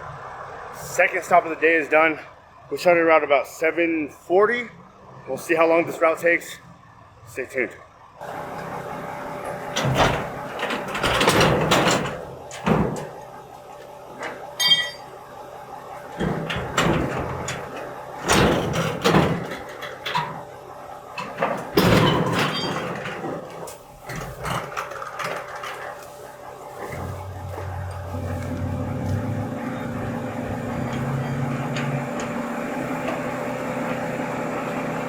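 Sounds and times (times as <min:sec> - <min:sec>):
garbage truck humming: 0:00.0 - 0:35.0
clanks and bangs: 0:09.8 - 0:13.2, 0:16.2 - 0:20.4, 0:21.2 - 0:26.0.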